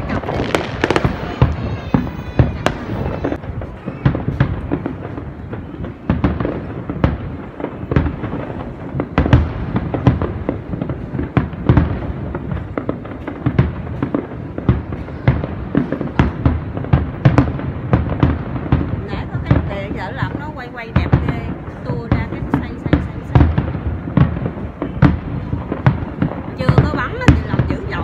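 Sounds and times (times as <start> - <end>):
distant firework bursts: 0.0 - 28.0
fireworks bursting with sharp bangs: 0.0 - 28.0.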